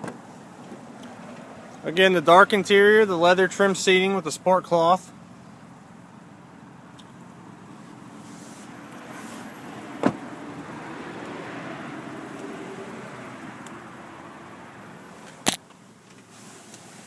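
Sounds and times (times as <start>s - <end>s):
car doors shutting: 9.0s - 10.7s.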